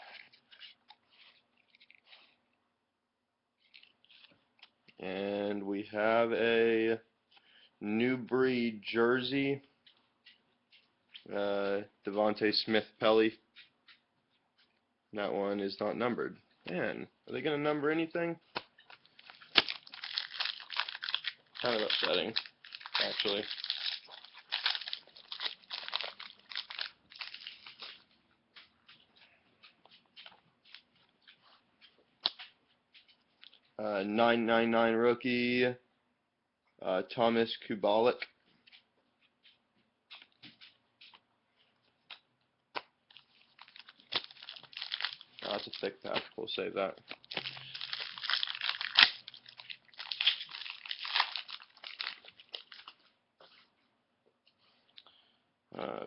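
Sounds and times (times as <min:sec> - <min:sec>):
cards being handled: 0:00.0 - 0:02.4, 0:03.6 - 0:04.7, 0:17.4 - 0:31.4, 0:42.8 - 0:53.6
wrapper crinkling and rustling: 0:18.6 - 0:28.1, 0:43.1 - 0:53.1.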